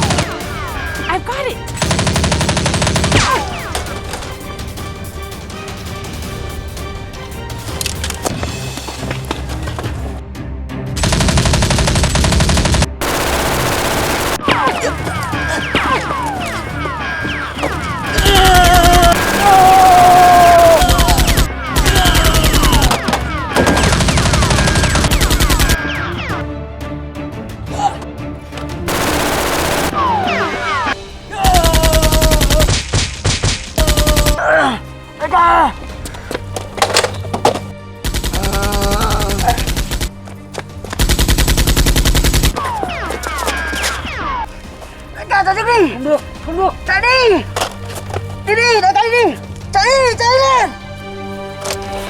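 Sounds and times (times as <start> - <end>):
background music: 0.0 - 52.0
automatic gunfire bursts: 11.0 - 14.5, 18.8 - 21.5, 28.9 - 30.2.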